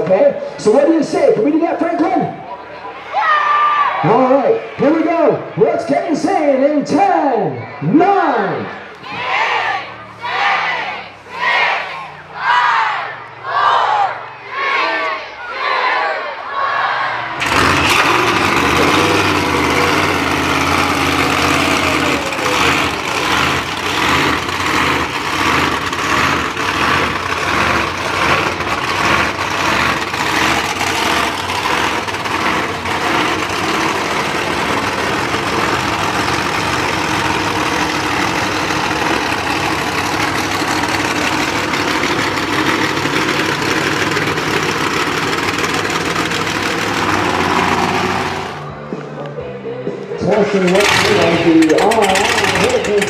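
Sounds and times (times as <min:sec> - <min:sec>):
monster truck engines idling: 0:08.4 - 0:15.5, 0:16.1 - 0:53.0.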